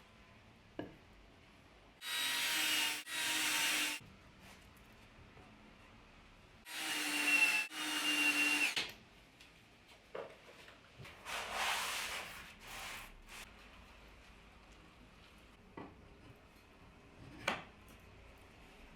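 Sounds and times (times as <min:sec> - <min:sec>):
power drill whining: 0:06.7 - 0:08.8.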